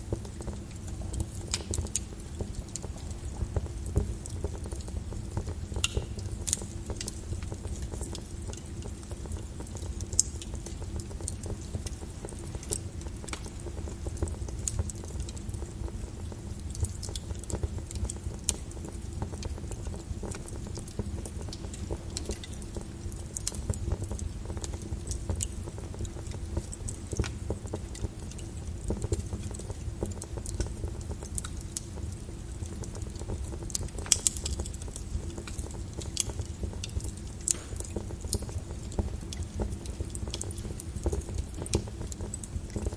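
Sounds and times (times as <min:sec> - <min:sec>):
rain on a window: 0:00.0 - 0:42.9
wood fire crackling: 0:00.0 - 0:42.9.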